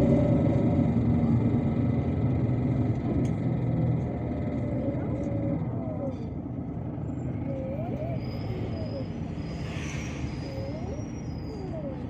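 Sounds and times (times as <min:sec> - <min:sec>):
bus diesel engine rumbling: 0:00.0 - 0:12.0.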